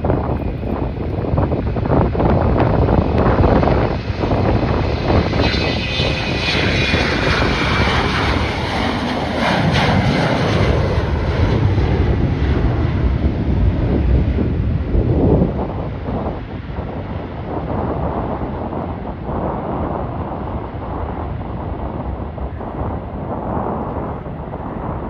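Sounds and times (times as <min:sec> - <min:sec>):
high engine whine: 0:00.0 - 0:16.9
jet engines rumbling past: 0:00.0 - 0:25.0
wind buffeting microphone: 0:00.0 - 0:25.0.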